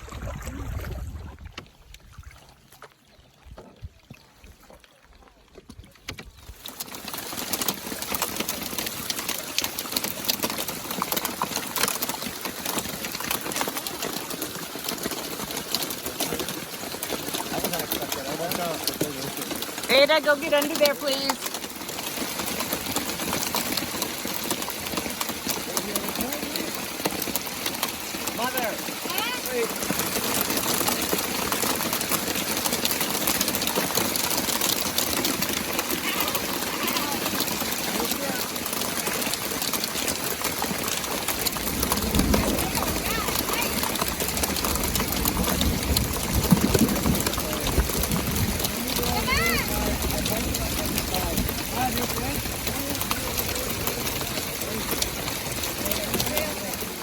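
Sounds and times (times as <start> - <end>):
hail ticking: 6.1 - 57.0
heavy rain: 6.6 - 57.0.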